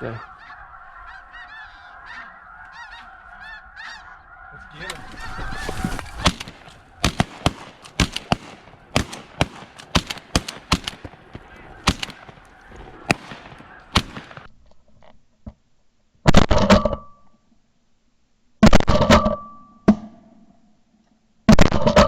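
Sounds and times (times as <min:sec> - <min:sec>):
shotgun blasts: 0:04.8 - 0:14.5.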